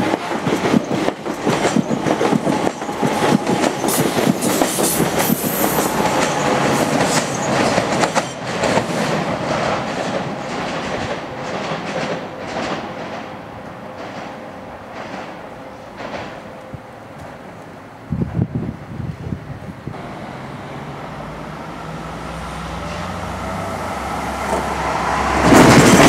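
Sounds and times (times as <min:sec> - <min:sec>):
train wheels clattering over rail joints: 0:00.0 - 0:16.5, 0:24.4 - 0:26.0
train hum: 0:00.0 - 0:26.0.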